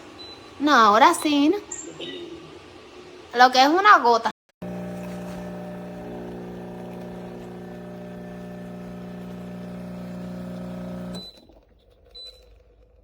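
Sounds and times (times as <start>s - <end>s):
espresso machine pump humming: 4.6s - 11.5s.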